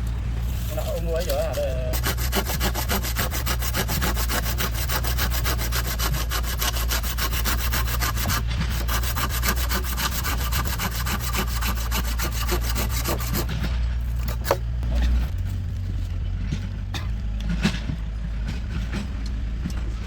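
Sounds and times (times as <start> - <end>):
steady low hum: 0.0 - 20.0
saw cutting through wood: 0.4 - 15.4.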